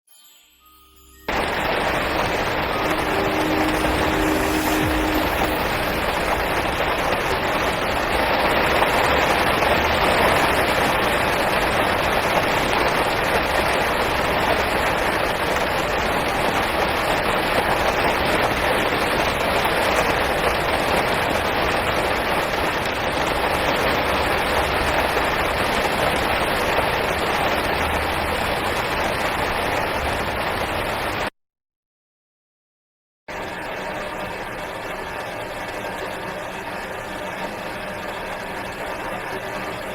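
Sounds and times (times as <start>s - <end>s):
steady rain falling: 1.0s - 31.3s.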